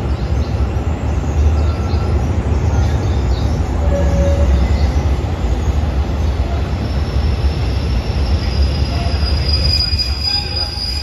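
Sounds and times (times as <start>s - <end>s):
train rumble: 0.0s - 11.0s
high brake squeal: 3.8s - 5.0s, 6.4s - 11.0s.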